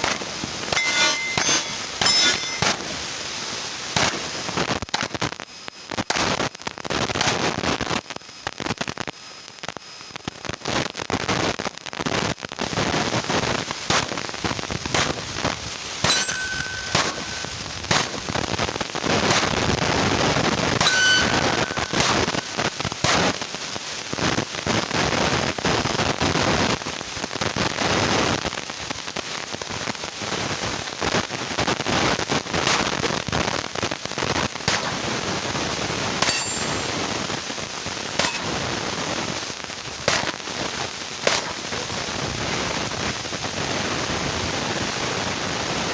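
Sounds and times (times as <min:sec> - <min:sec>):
pistol gunshots: 0:34.7 - 0:35.2, 0:40.1 - 0:40.4, 0:41.3 - 0:41.7.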